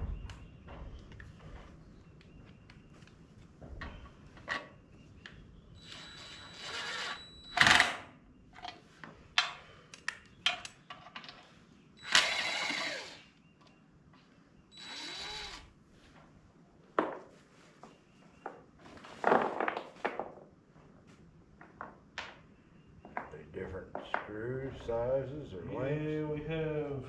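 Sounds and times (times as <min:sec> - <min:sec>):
power drill running: 0:05.8 - 0:07.8, 0:12.0 - 0:13.3, 0:14.7 - 0:15.7.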